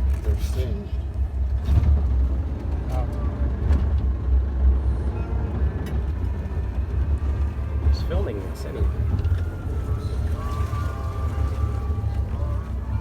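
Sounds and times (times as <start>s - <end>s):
motorboat engine rumble: 0.0s - 13.0s
faint voices: 6.2s - 13.0s.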